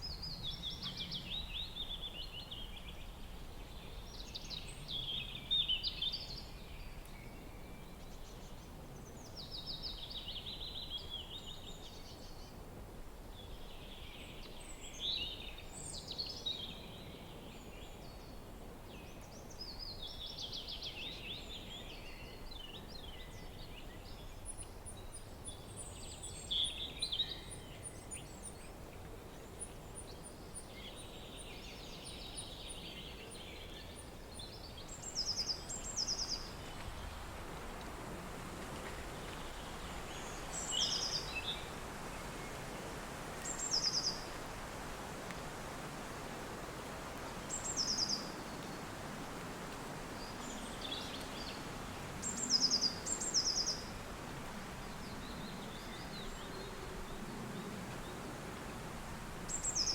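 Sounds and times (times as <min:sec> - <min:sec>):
wind: 0:00.0 - 0:59.9.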